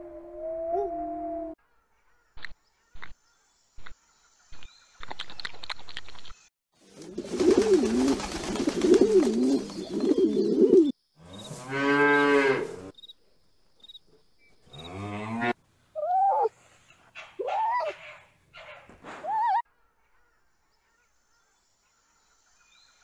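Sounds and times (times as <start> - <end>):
pigeons cooing: 7.1 - 10.9
cow mooing: 11.4 - 12.9, 14.8 - 15.6
fox calling: 16.0 - 19.6.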